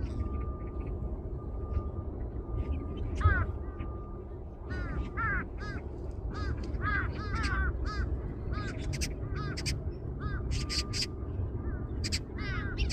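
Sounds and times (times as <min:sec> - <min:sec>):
low rumble: 0:00.0 - 0:12.9
crows cawing: 0:03.2 - 0:03.6, 0:04.6 - 0:11.1, 0:11.7 - 0:12.9.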